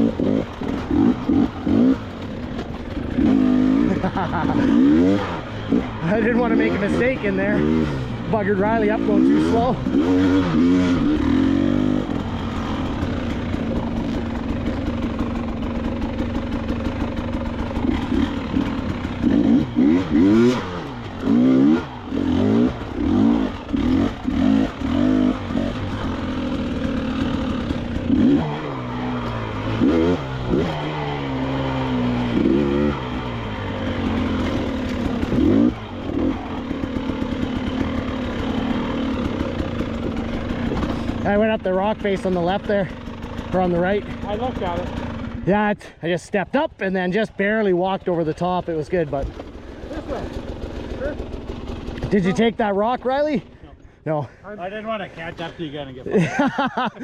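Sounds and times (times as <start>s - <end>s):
motorcycle engine throttle blips: 0.0s - 45.5s.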